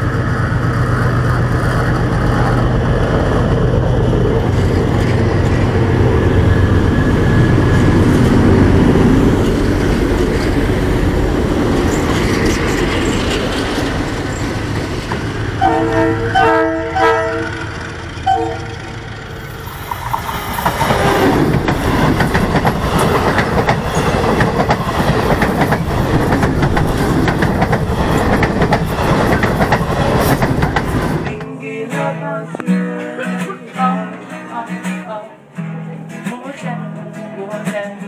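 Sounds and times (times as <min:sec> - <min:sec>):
train rumbling past: 0:00.0 - 0:31.6
train wheels clicking over rail joints: 0:09.3 - 0:15.7, 0:17.6 - 0:31.4
multi-tone train horn blasts: 0:15.6 - 0:19.1.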